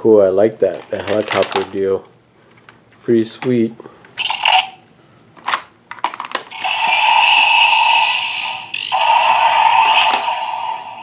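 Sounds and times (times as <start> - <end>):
electronic toy buzzing tone: 6.6 - 11.0.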